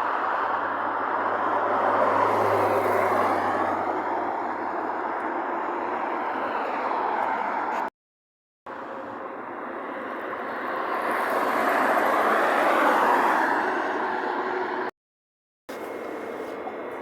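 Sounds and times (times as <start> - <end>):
vehicle passing by: 0.2 - 7.9, 9.2 - 14.9.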